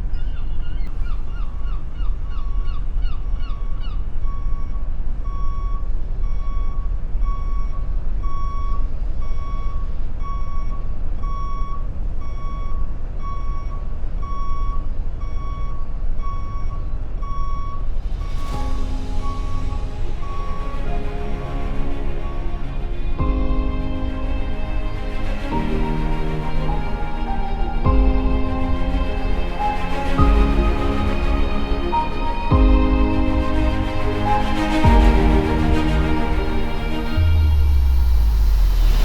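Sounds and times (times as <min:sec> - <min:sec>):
vehicle reversing alarm beeping: 0:05.3 - 0:18.6
deep engine rumble: 0:18.0 - 0:39.0.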